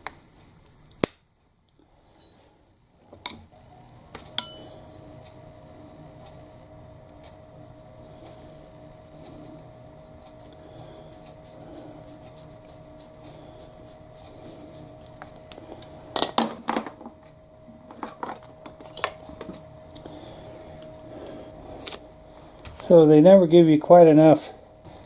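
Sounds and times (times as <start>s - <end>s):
faint steady hum: 0.0s - 25.0s
tools knocking and clattering: 17.9s - 19.6s.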